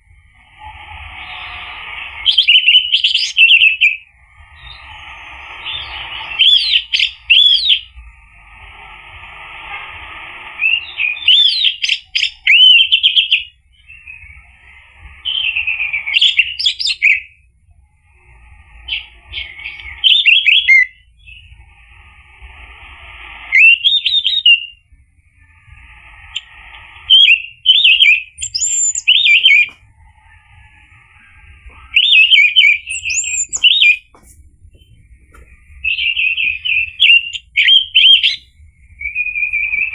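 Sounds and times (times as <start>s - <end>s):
thrush singing whistled notes: 0.4s - 17.5s, 18.1s - 24.8s, 25.4s - 39.9s
steady hiss: 7.8s - 11.0s.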